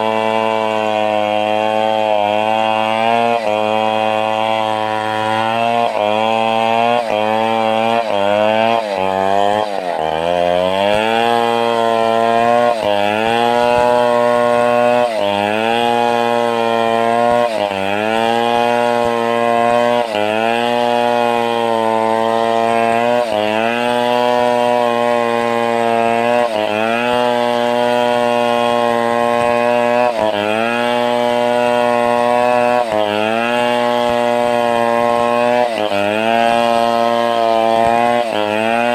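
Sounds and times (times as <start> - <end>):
chainsaw cutting timber: 0.0 - 38.9.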